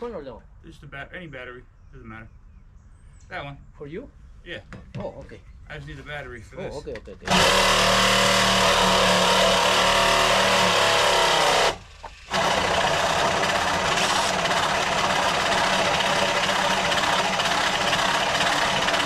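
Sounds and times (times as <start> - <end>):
battery-powered saw cutting: 7.3 - 19.0.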